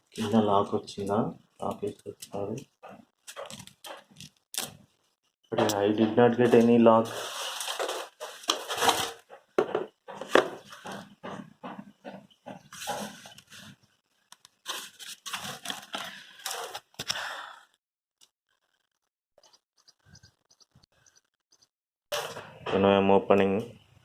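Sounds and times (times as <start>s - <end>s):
packaging rustling and tearing: 7.0s - 9.3s, 14.6s - 17.0s.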